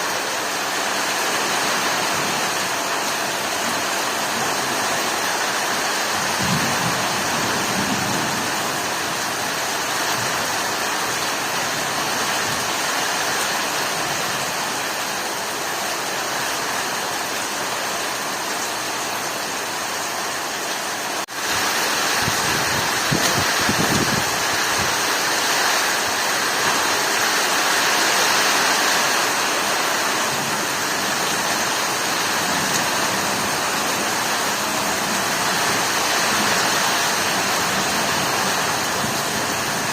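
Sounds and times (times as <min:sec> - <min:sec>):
heavy rain pouring: 0:00.0 - 0:39.9
low thunder rumbles: 0:06.3 - 0:08.8.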